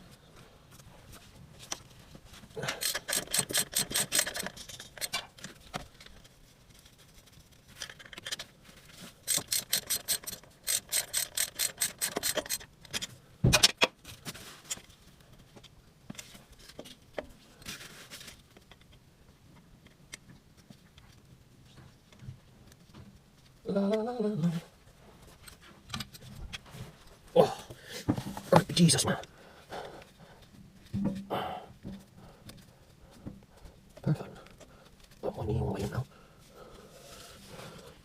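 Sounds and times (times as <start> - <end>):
ratchet wrench clicking: 2.8 - 5.1, 9.2 - 12.7.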